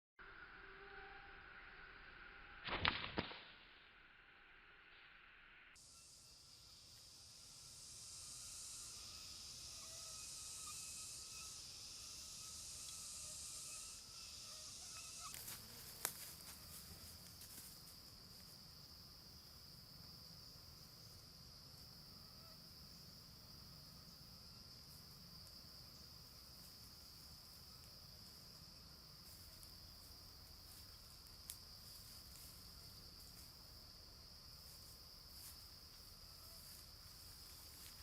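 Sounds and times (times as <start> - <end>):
insects droning: 4.1 - 38.0
faint ticks: 12.8 - 13.0, 15.3 - 16.4, 30.7 - 32.6.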